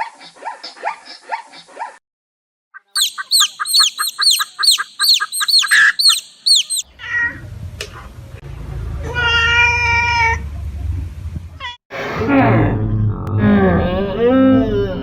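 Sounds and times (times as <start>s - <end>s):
bird chirping: 2.8s - 6.9s
pitched animal call: 2.9s - 7.4s.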